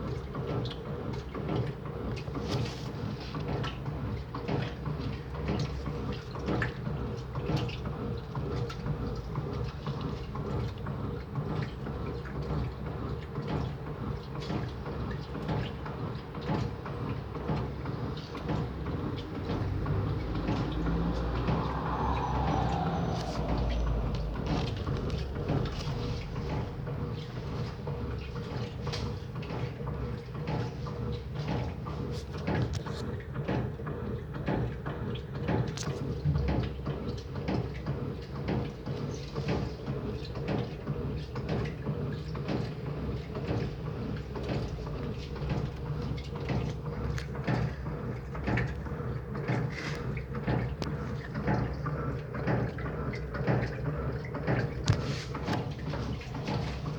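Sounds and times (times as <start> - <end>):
washing machine motor hum: 9.6 - 31.8, 40.6 - 56.9
falling whine: 19.4 - 26.7.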